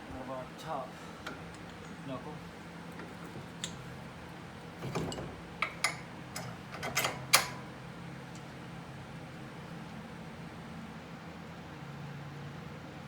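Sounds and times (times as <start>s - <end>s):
metallic clinks of bolts: 5.6s - 7.6s.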